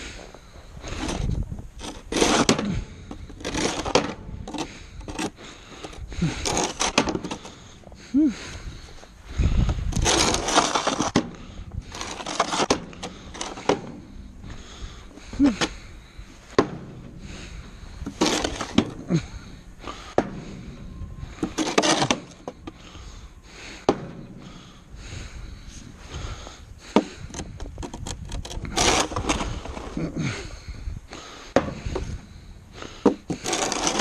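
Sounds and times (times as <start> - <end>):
snow shovel scraping ground: 0.0 - 7.6, 9.7 - 14.8, 16.4 - 23.2, 27.8 - 30.4, 32.8 - 34.0.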